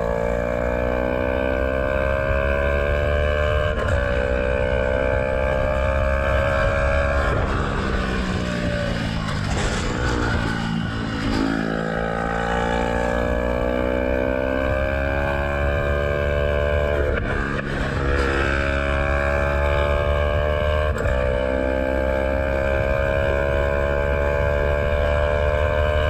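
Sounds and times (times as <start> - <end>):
motorcycle engine pulling through gears: 0.0 - 26.0
low wind rumble: 4.8 - 13.8.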